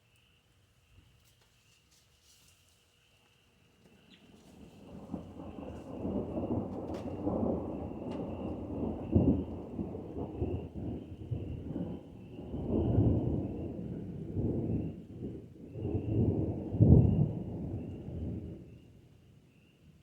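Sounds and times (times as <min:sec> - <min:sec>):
thunder rumbling: 0:04.5 - 0:18.8.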